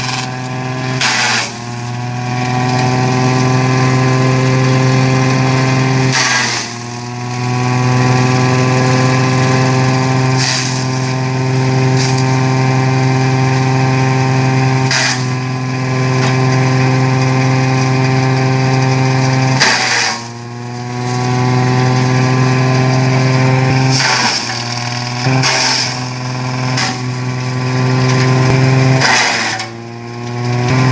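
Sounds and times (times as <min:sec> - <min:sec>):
cutting noise: 0:00.0 - 0:30.9
shredder machine droning: 0:00.0 - 0:30.9.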